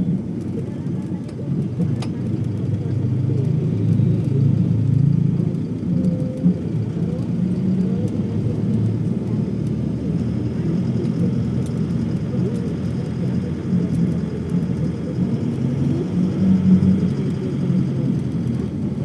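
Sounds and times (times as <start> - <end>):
low vehicle rumble: 0.0 - 19.0.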